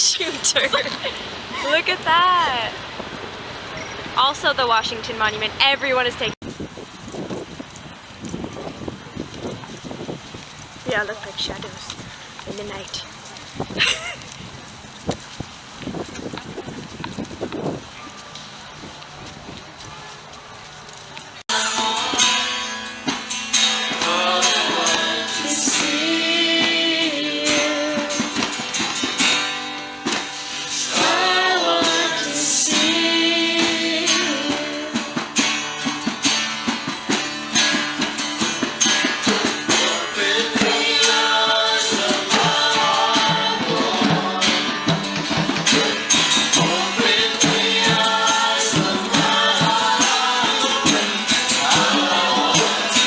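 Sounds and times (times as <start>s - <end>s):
person singing: 21.5s - 22.6s, 24.0s - 28.4s, 30.9s - 35.3s, 39.7s - 45.0s, 45.6s - 53.0s
strummed guitar: 21.5s - 53.0s.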